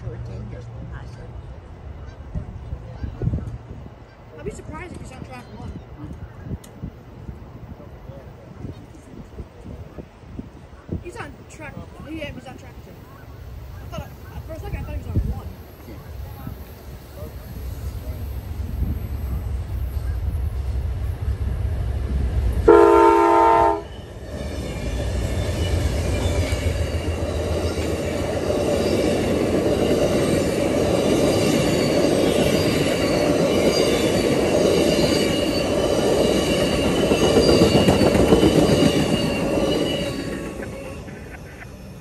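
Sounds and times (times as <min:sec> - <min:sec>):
train horn blast: 0:22.6 - 0:24.2
train wheels clattering on rails: 0:24.0 - 0:41.6.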